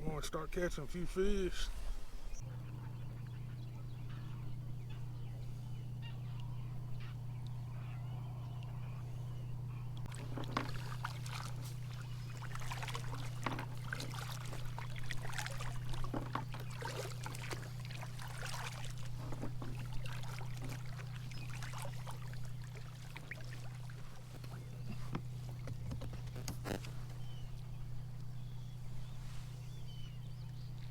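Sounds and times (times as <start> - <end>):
steady low hum: 0.0 - 30.9
water splashing around a kayak: 10.0 - 30.9.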